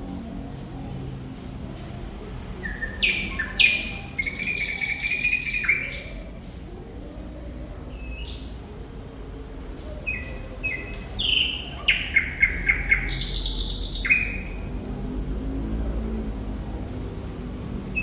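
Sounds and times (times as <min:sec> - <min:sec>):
nightingale singing: 0:01.7 - 0:06.2, 0:09.8 - 0:14.7.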